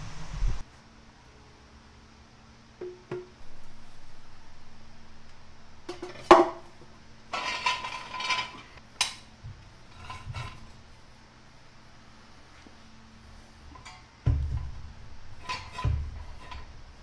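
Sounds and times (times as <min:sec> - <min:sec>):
metal pipe clanking: 0:03.1 - 0:10.8, 0:13.6 - 0:17.0
metal scraping and rattling: 0:03.4 - 0:11.1, 0:13.2 - 0:17.0.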